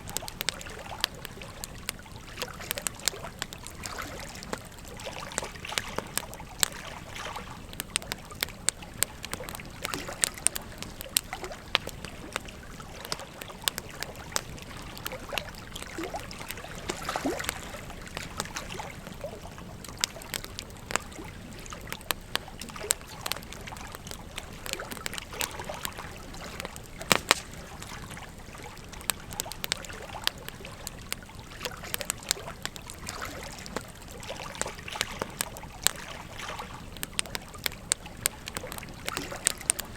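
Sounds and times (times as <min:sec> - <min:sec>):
wood fire crackling: 0:00.0 - 0:39.9
river water flowing: 0:11.3 - 0:19.0.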